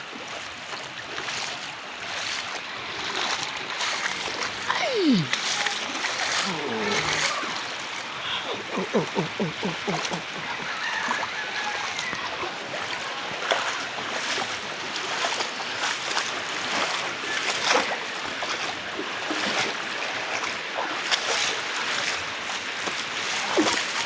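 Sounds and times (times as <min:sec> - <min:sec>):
water splashes: 0:00.0 - 0:24.0
floodwater rushing: 0:00.2 - 0:24.0.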